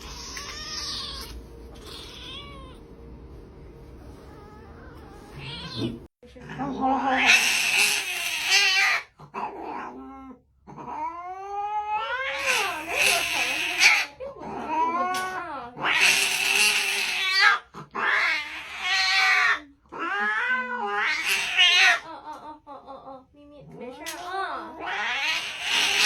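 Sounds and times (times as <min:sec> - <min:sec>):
kitten meowing: 0:00.0 - 0:02.8, 0:05.3 - 0:06.1.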